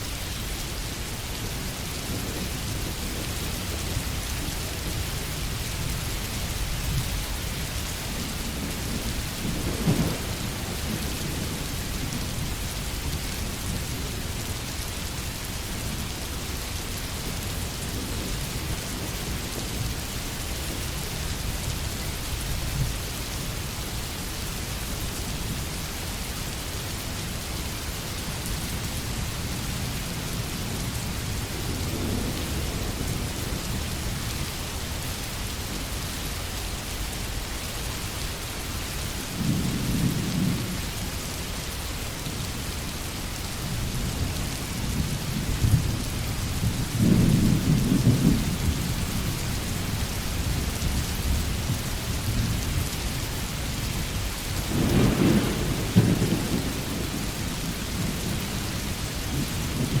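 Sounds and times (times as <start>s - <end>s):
heavy rain falling: 0.0s - 60.0s
thunder rumbling: 8.0s - 14.3s, 43.7s - 53.0s, 53.9s - 60.0s.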